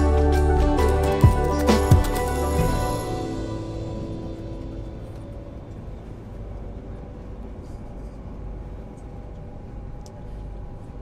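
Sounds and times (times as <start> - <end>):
electric train rumbling: 0.0 - 11.0.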